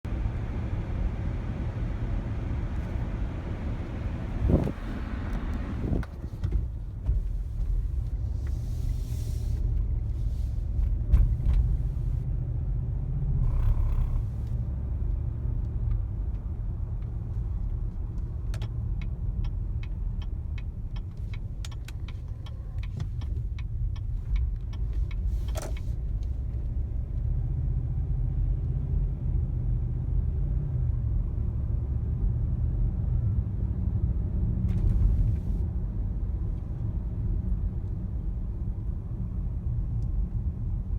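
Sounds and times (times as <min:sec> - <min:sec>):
car road rumble: 0:00.0 - 0:40.9
light ticks: 0:18.1 - 0:26.3.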